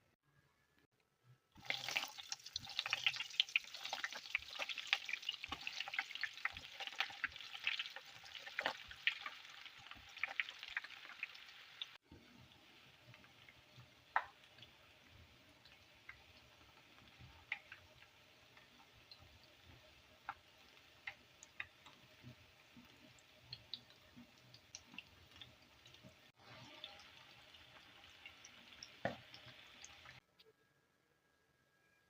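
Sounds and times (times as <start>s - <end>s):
small clicks and pops: 13.1s - 14.7s, 15.6s - 26.2s.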